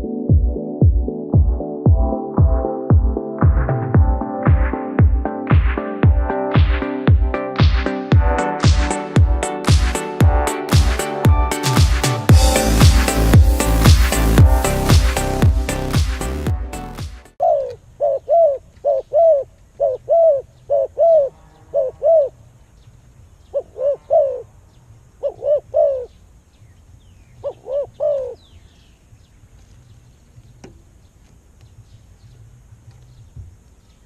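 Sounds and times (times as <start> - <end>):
bird cooing: 17.4 - 22.4, 23.5 - 24.5, 25.2 - 26.2, 27.4 - 28.5.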